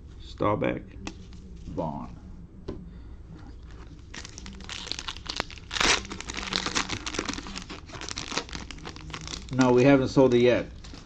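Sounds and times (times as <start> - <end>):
plastic wrapper crinkling and tearing: 3.7 - 11.0.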